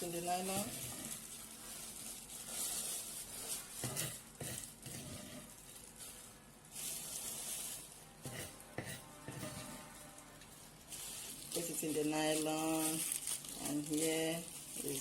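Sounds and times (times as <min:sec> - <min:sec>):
plastic bag rustling: 0:00.0 - 0:15.0.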